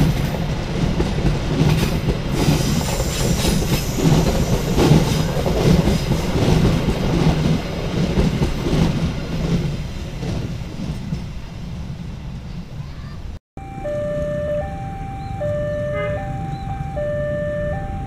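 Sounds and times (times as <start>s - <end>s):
train wheels clattering on rails: 0.0s - 12.6s.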